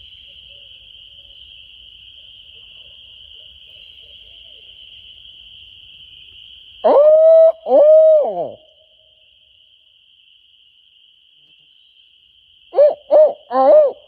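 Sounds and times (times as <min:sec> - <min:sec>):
loud hooting call: 0:06.8 - 0:08.7, 0:12.8 - 0:14.0.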